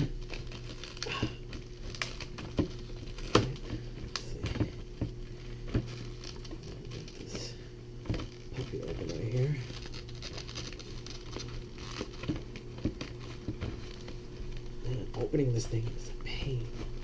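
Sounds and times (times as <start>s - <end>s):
hands handling packaging: 0.0s - 17.0s
steady low hum: 0.0s - 17.0s.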